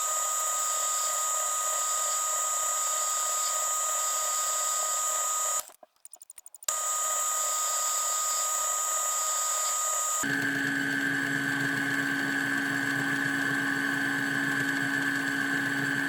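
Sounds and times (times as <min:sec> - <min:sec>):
faint ticks: 0:05.6 - 0:06.7
metal lathe whining: 0:06.7 - 0:16.0.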